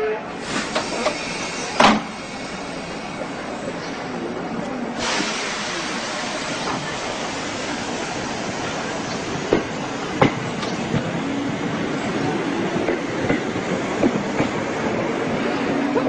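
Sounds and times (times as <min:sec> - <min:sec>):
train rolling noise: 0:00.3 - 0:16.0
hiss: 0:00.4 - 0:04.1, 0:04.8 - 0:09.3.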